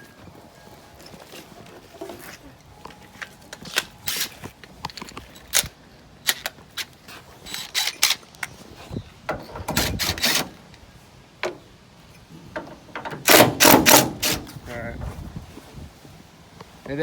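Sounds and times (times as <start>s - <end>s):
tools clicking and knocking: 12.6s - 14.5s.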